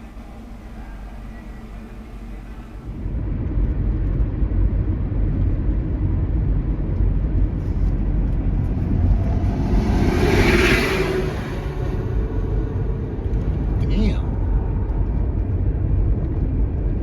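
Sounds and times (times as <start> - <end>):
road and engine rumble: 0.0 - 17.0
vehicle passing hiss: 7.6 - 13.1.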